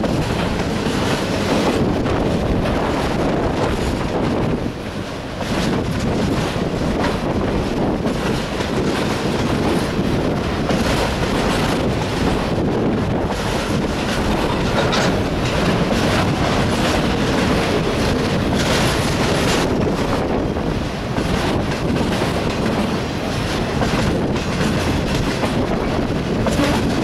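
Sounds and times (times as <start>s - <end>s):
wheels clattering over rail: 5.4s - 27.0s.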